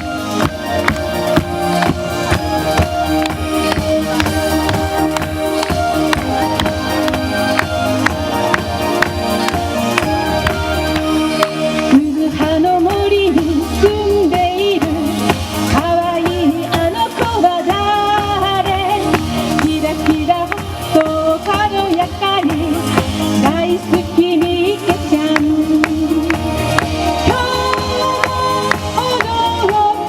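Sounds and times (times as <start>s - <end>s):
backing track with steady beat: 0.0s - 30.0s
woman singing pop song: 11.6s - 30.0s.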